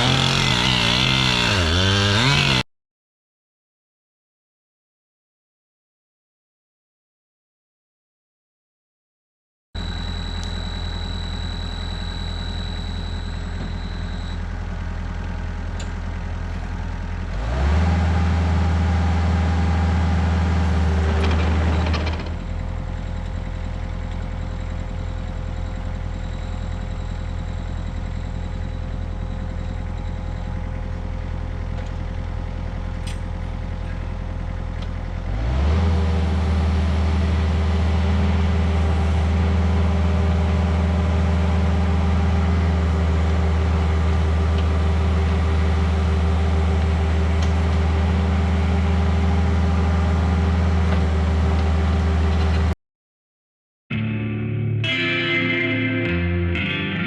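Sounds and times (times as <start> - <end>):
excavator diesel engine revving: 0.0 - 2.6, 9.8 - 52.8.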